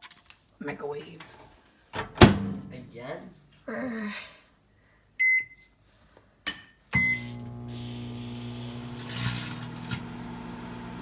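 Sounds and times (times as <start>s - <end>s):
microwave keypad beeping: 5.2s - 5.6s, 7.0s - 7.4s
microwave oven humming: 7.0s - 11.0s.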